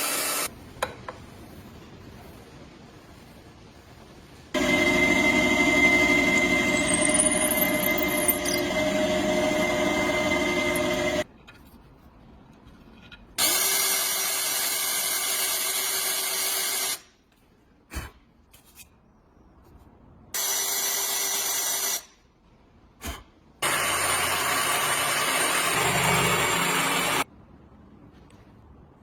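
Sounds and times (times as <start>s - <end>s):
power tool motor whining: 4.6s - 11.2s.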